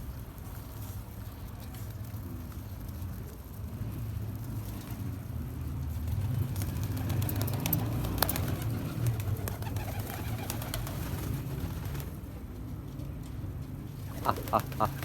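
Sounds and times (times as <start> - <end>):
pigeons cooing: 6.4 - 12.2, 14.0 - 15.0.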